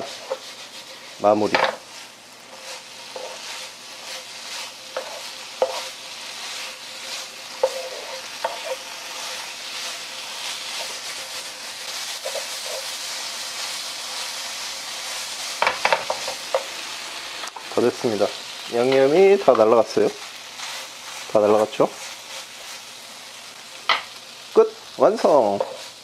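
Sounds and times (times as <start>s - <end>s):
wooden spatula scraping a pan: 0.0s - 16.8s, 25.2s - 26.0s
squid sizzling in a frying pan: 0.0s - 26.0s.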